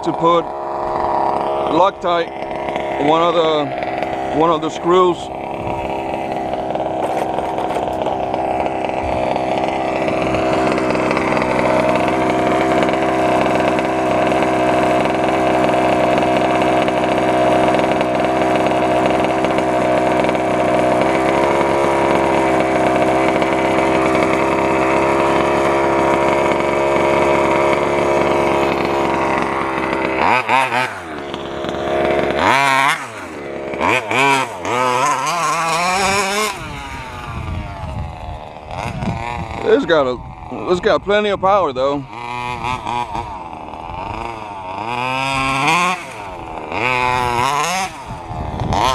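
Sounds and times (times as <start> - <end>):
model truck two-stroke engine revving: 0.0 - 48.9.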